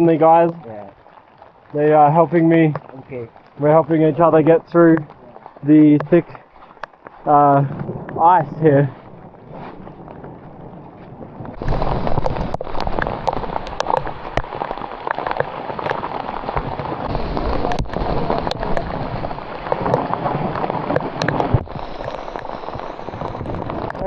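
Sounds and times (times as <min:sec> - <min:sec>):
hail pelting down: 0:00.0 - 0:24.0.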